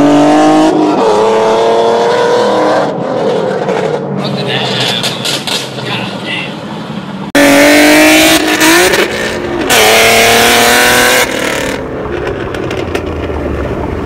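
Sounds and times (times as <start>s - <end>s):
car engine revving hard: 0.0s - 4.0s, 7.4s - 11.8s.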